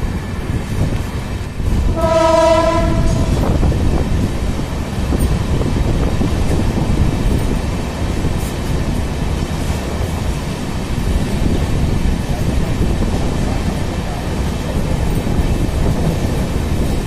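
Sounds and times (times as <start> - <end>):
train rumbling on track: 0.0 - 17.0
train horn blast: 1.9 - 3.6.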